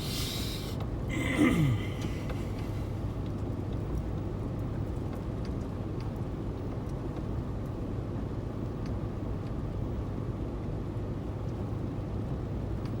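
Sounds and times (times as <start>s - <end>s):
car engine and road noise: 0.0s - 13.0s
faint light ticks: 2.0s - 7.9s, 8.6s - 9.7s, 11.4s - 11.7s, 12.3s - 13.0s.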